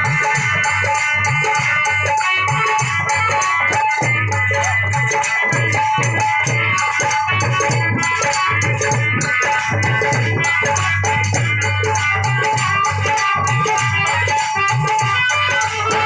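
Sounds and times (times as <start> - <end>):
deep dhol drum strokes: 0.0 - 16.0
harmonium chords: 0.0 - 16.0
high percussion strikes: 0.0 - 16.0.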